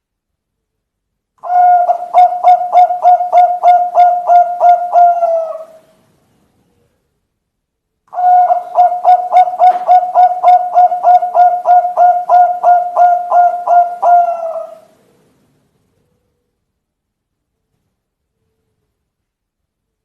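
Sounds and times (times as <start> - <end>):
dove cooing: 1.4 - 6.0, 8.1 - 15.2.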